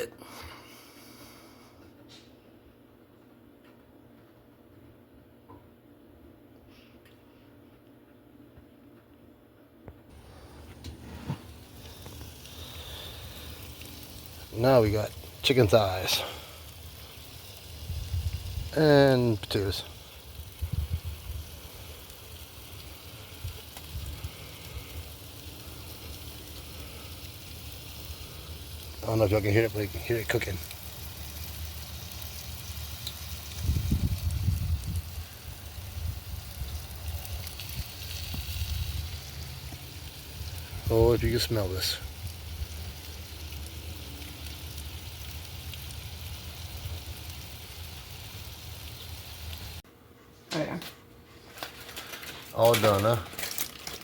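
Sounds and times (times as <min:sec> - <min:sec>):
food sizzling on a grill: 0:10.1 - 0:49.8, 0:51.6 - 0:54.0
low uneven rumble: 0:10.1 - 0:49.8.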